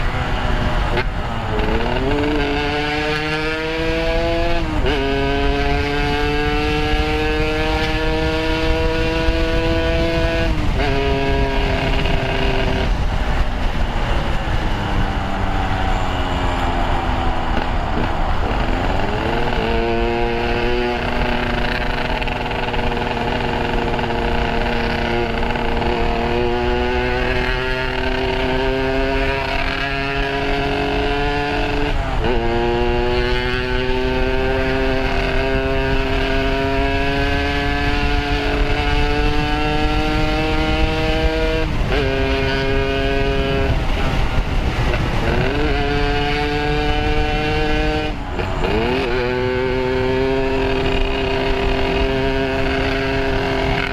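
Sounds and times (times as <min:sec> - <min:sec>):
two-stroke motorcycle engine: 0:00.0 - 0:53.9
rushing noise: 0:06.8 - 0:33.0.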